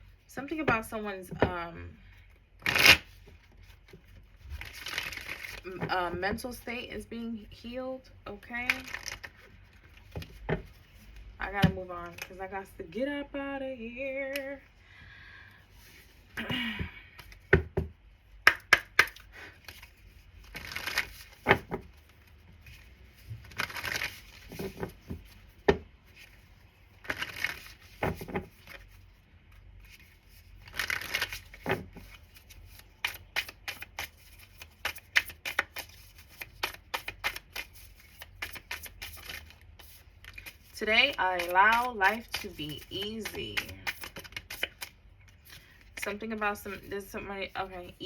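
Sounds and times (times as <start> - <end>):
cards riffling: 4.6 - 5.6, 8.7 - 10.3, 18.5 - 22.1, 23.4 - 25.6, 27.0 - 29.0, 29.8 - 45.8
cards clicking and tapping on table: 17.5 - 19.3.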